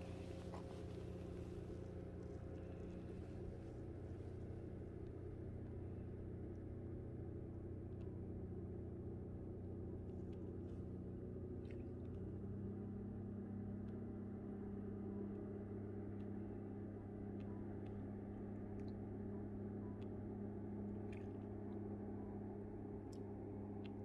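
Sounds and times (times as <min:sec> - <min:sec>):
distant engine droning: 0:00.0 - 0:04.5.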